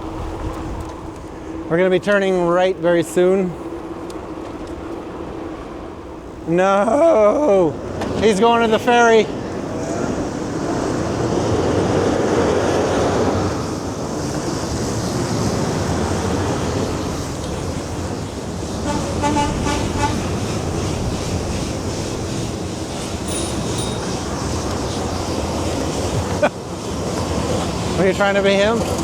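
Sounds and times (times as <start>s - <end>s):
wind rush and road noise: 0.0s - 29.0s
brief high-pitched sound: 23.3s - 24.7s.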